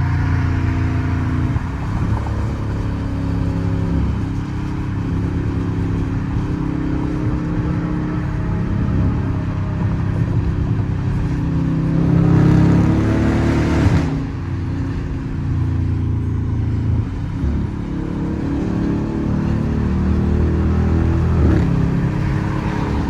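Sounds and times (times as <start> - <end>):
car engine exhaust revving: 0.0 - 15.5, 16.1 - 23.0.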